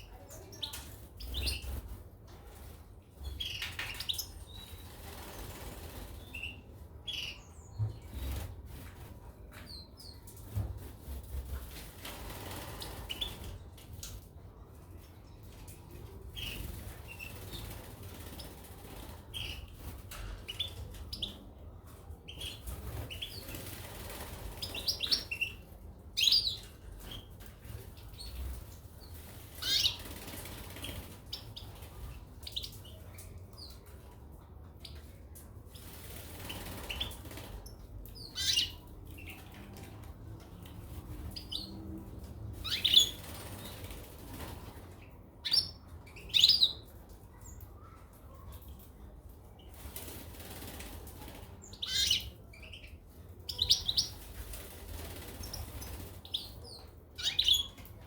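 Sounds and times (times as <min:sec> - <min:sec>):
small birds chirping: 0:00.0 - 0:14.3, 0:15.0 - 0:58.0
birds fluttering wings: 0:04.8 - 0:06.4, 0:10.5 - 0:13.7, 0:22.6 - 0:25.1, 0:29.1 - 0:32.2, 0:35.7 - 0:37.7, 0:42.6 - 0:45.0, 0:49.7 - 0:51.6, 0:54.0 - 0:56.5.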